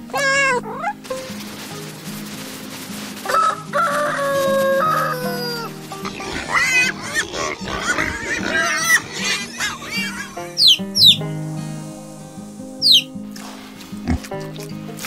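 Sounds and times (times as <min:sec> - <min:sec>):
background music with low notes: 0:00.0 - 0:15.0
rooster crowing: 0:03.2 - 0:11.2
high wavering call: 0:09.9 - 0:13.3.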